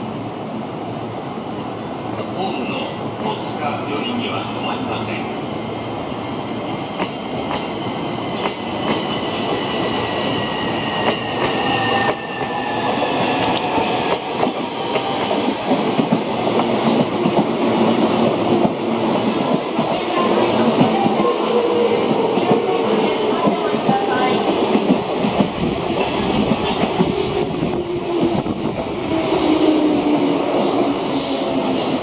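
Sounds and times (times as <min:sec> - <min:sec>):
electric train passing: 0:00.0 - 0:32.0.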